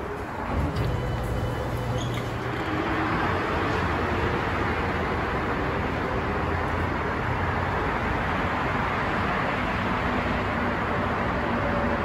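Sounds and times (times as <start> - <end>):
train rushing rumble: 0.0 - 12.0.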